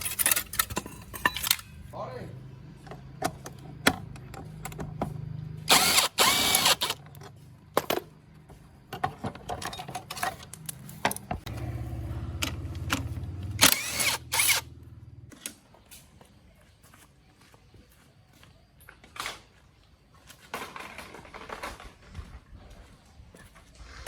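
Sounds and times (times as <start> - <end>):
motorcycle engine droning: 11.3 - 15.3
loud engine bursts: 11.5 - 14.8.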